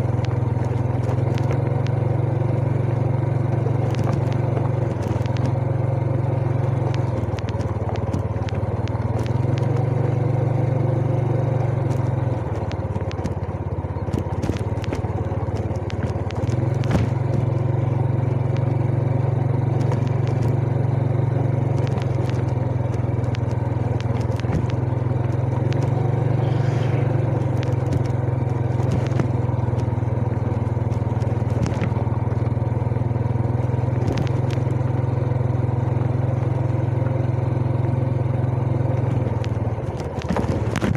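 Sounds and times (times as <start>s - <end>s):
motorcycle engine running: 0.0s - 40.9s
clicks and rattles: 11.8s - 17.7s, 21.7s - 32.4s, 33.6s - 34.8s, 39.0s - 40.9s.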